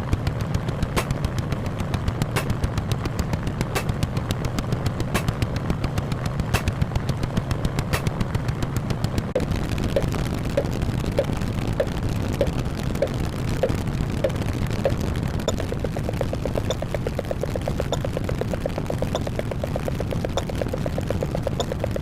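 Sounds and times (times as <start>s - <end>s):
steady low rumble: 0.0s - 22.0s
rapid repeated bangs: 4.8s - 22.0s.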